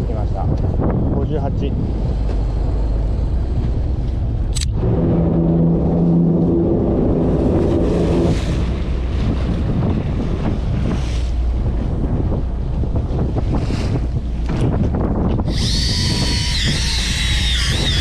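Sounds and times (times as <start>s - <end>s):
boat engine rumble: 0.0s - 18.0s
wind buffeting microphone: 0.0s - 18.0s
sharp click: 4.5s - 4.7s.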